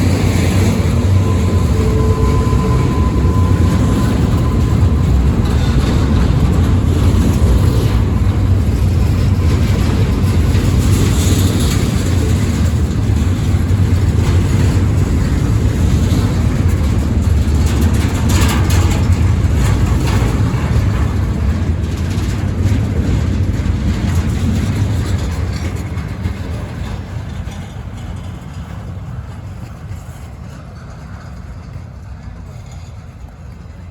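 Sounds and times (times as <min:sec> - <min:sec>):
train rumbling past: 0:00.0 - 0:33.9.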